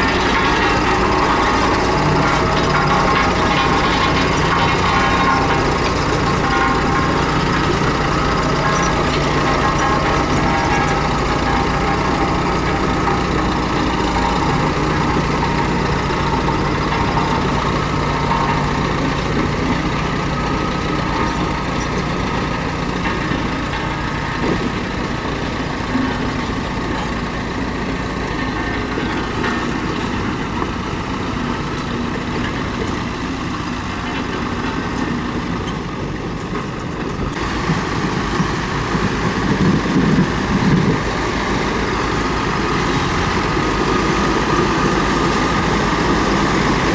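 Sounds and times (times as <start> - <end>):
loud knocks: 0.0 - 24.8
bulldozer diesel engine under load: 0.0 - 46.9
tracks clattering: 0.0 - 46.9.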